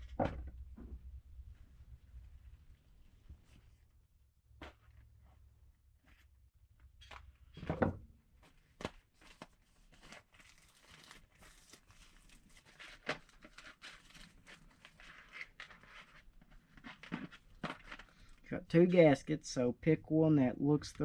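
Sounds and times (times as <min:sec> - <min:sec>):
plastic packaging crinkling: 0:09.2 - 0:18.4.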